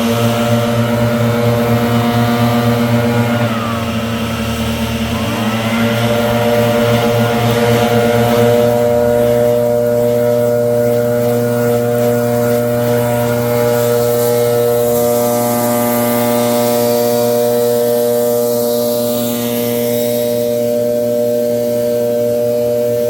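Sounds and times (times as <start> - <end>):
leaf blower engine running: 0.0 - 23.0.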